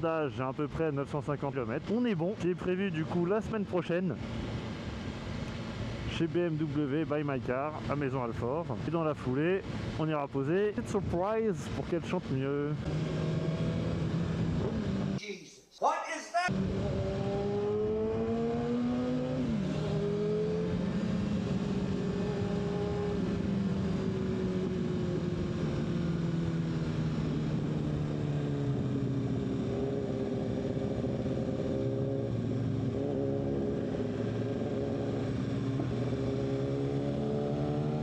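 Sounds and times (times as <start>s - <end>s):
motorcycle engine accelerating: 12.1s - 15.2s, 16.5s - 38.0s.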